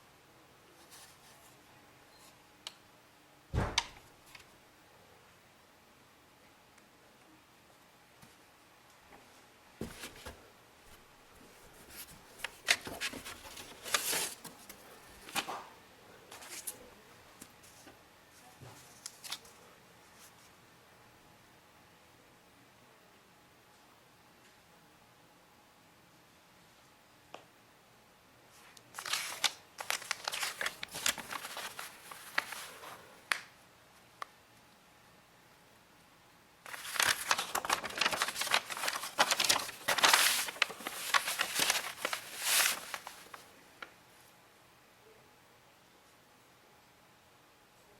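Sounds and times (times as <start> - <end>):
packaging rustling and scraping: 11.6 - 15.6, 29.0 - 33.0, 36.7 - 43.5.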